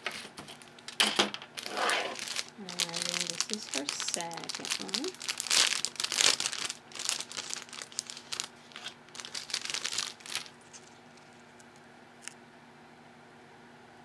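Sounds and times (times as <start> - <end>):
packaging crinkling: 0.0 - 12.4.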